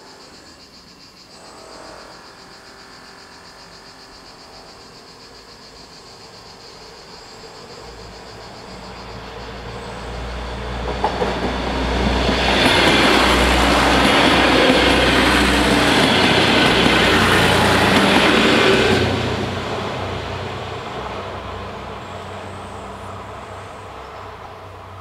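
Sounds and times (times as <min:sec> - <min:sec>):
diesel railcar rumbling past: 0:00.0 - 0:25.0.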